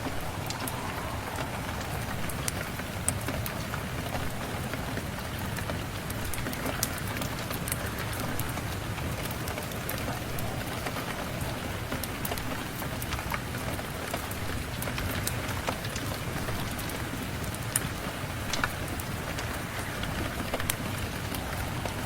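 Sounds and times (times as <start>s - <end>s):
wood fire crackling: 0.0s - 4.8s
steady rain: 0.0s - 22.0s.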